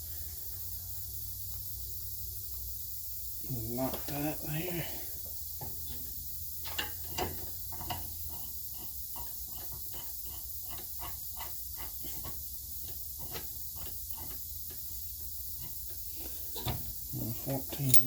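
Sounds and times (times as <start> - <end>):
steady low hum and hiss: 0.0 - 18.0
hand tools and bolts clicking: 17.7 - 18.0.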